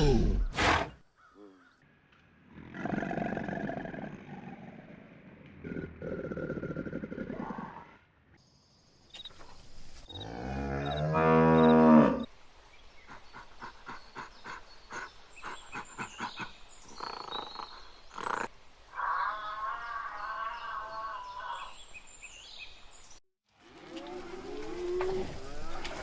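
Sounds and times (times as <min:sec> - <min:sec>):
cow mooing: 0:10.2 - 0:12.3, 0:23.6 - 0:26.0.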